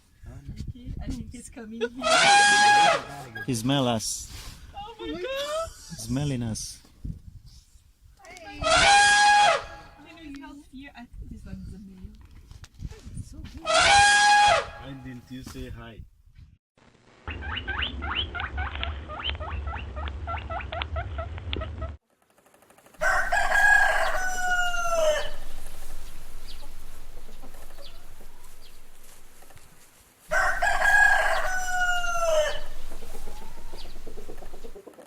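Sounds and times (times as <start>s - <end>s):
rooster crowing: 23.0s - 34.8s
chickens clucking: 23.0s - 35.0s.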